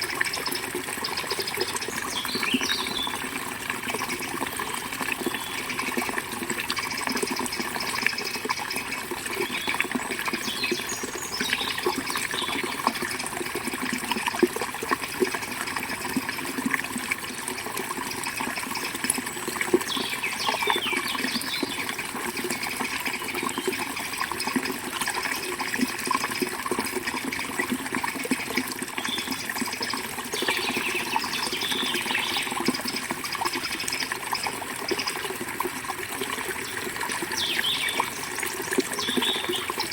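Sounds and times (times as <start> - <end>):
river water flowing: 0.0 - 39.9
birds chirping: 0.4 - 3.2, 30.4 - 33.8, 36.6 - 38.4, 39.0 - 39.9.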